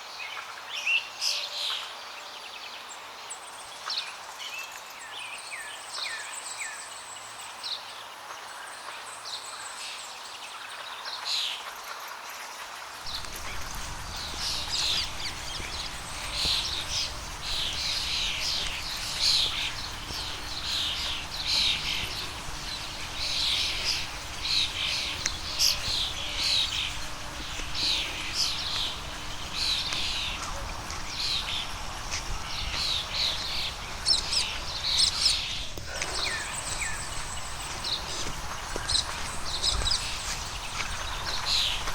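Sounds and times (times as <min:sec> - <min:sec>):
birds chirping: 0:00.2 - 0:41.9
faint steady hum: 0:13.0 - 0:41.9.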